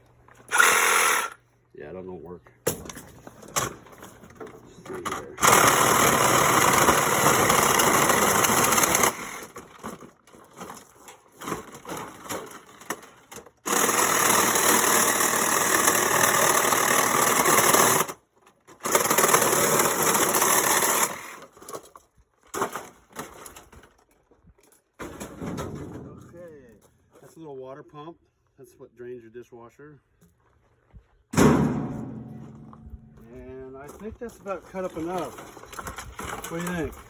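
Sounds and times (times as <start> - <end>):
power saw cutting metal: 0.5 - 1.4, 5.3 - 9.7, 13.7 - 18.2, 18.8 - 21.5
rattling and knocking: 25.0 - 26.5, 31.4 - 33.3.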